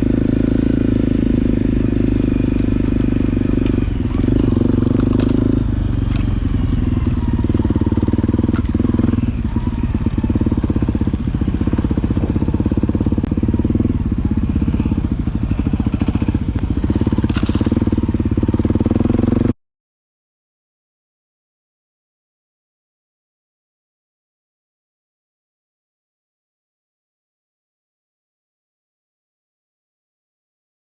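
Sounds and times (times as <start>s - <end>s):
motorcycle engine putter: 1.5s - 13.8s, 15.6s - 18.6s.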